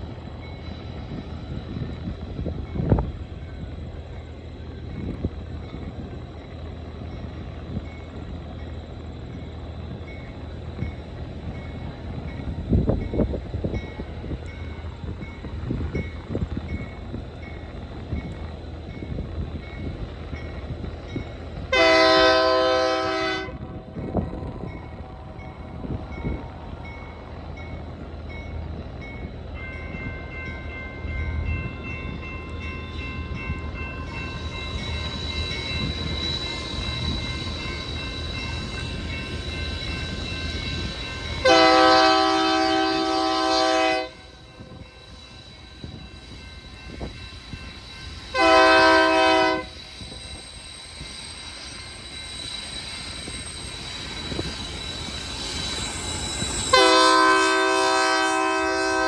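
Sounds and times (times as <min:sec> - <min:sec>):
train rumble: 0:00.0 - 0:59.0
locomotive air horn blasts: 0:21.7 - 0:23.6, 0:41.4 - 0:44.3, 0:48.3 - 0:49.8, 0:56.7 - 0:59.0.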